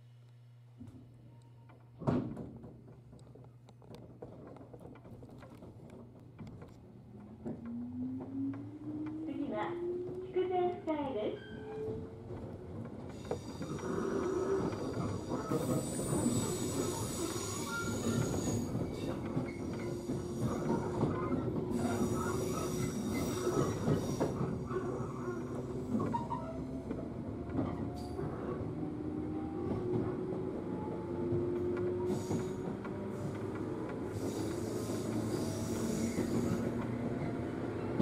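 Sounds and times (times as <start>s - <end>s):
wheels rumbling on rail: 2.3s - 38.0s
train motor whine: 7.2s - 37.3s
high wheel squeal: 13.2s - 26.6s, 34.2s - 36.8s.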